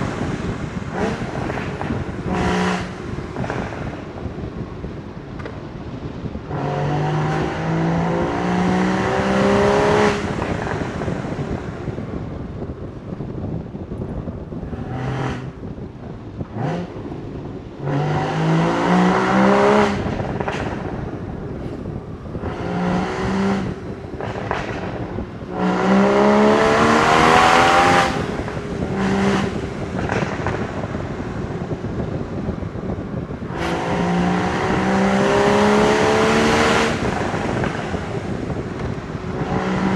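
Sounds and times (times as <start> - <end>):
sports car engine accelerating: 0.0 - 39.9
wind rushing over car: 0.0 - 39.9
sharp exhaust cracks: 17.8 - 39.9.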